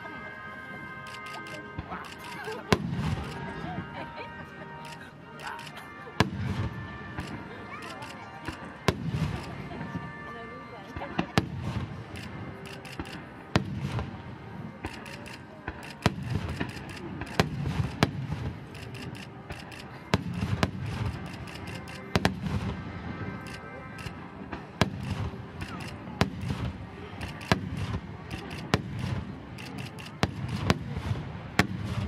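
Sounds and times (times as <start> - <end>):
fireworks crackling: 1.0 - 10.2, 10.9 - 32.0
fireworks bangs: 6.2 - 9.9, 11.0 - 32.0.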